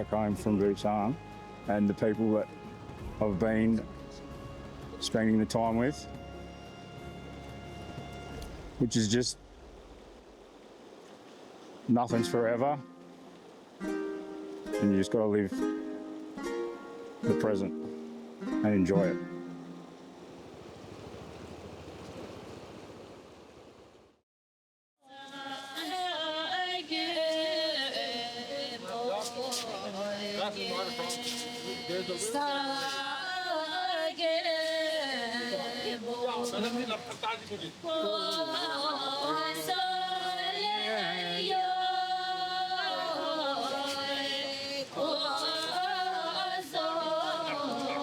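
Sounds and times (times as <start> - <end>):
chanting voice with music: 0.0 - 8.8, 25.0 - 48.0
rushing noise: 7.8 - 12.0
person singing long notes: 25.1 - 37.1, 37.8 - 48.0.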